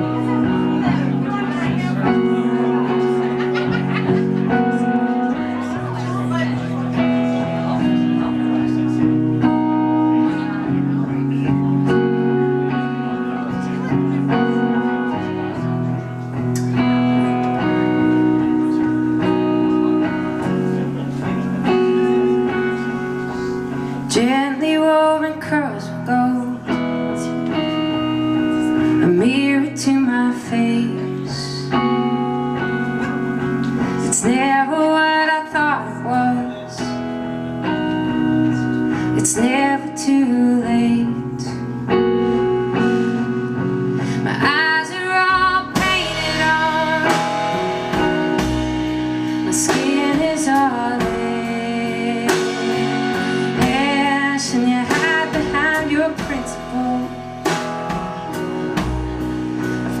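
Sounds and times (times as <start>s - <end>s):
acoustic guitar: 0.0s - 60.0s
live band playing: 0.0s - 60.0s
woman singing: 23.3s - 32.9s, 33.8s - 59.0s.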